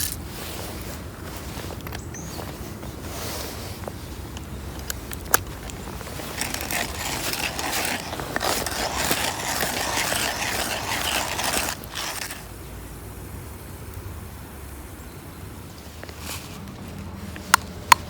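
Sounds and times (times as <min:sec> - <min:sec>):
rough scraping and rattling: 0:00.0 - 0:12.5.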